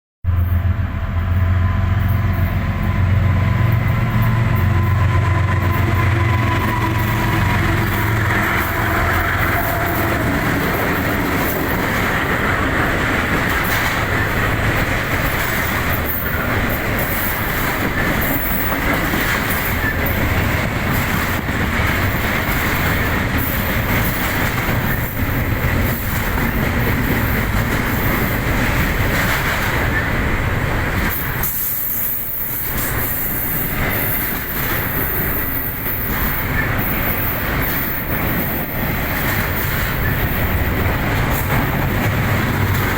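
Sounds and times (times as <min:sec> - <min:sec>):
train wheels rumbling on rails: 0:00.3 - 0:42.9
clickety-clack of wheels: 0:02.0 - 0:42.9
faint high wheel squeal: 0:18.2 - 0:18.9.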